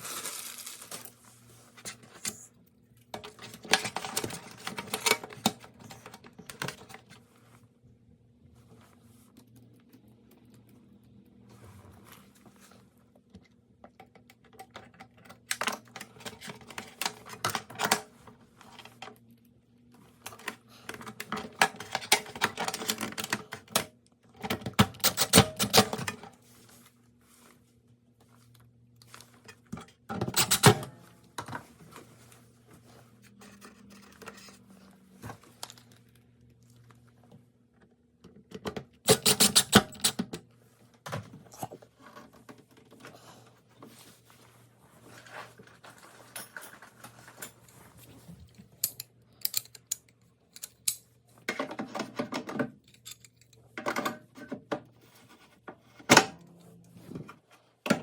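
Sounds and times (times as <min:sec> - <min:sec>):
hard parts clicking and rattling: 0:30.1 - 0:30.9, 0:39.1 - 0:40.3.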